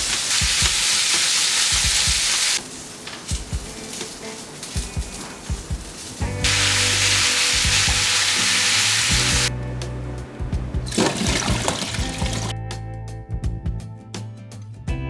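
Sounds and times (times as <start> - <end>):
rush of liquid: 0.0 - 3.0, 6.4 - 9.5, 10.8 - 12.5
soft background music: 3.3 - 15.0.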